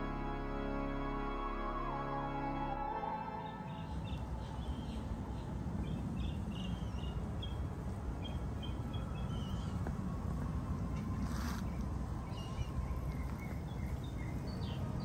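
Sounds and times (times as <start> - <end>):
low outdoor rumble: 0.0 - 15.0
small bird chirping: 11.2 - 15.0.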